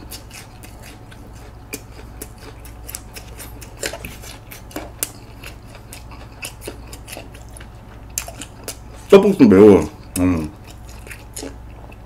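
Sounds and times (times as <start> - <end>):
crunchy food being chewed: 0.0 - 12.0.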